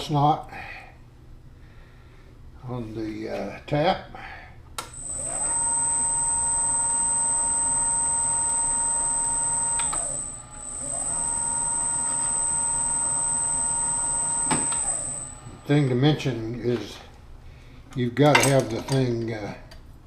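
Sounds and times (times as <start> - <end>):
power drill motor whine: 4.8 - 16.3
drill click: 4.8 - 16.9.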